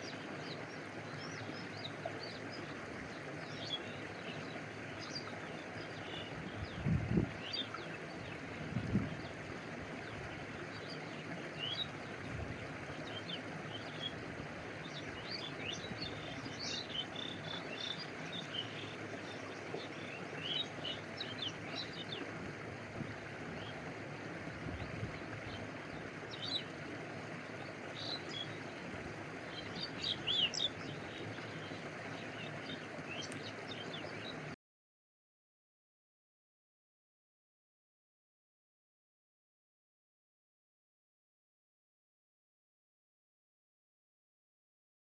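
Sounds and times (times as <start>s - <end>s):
stream flowing: 0.0s - 34.6s
water lapping: 0.0s - 34.6s
birds chirping: 14.8s - 22.3s, 24.5s - 26.8s, 27.5s - 34.5s.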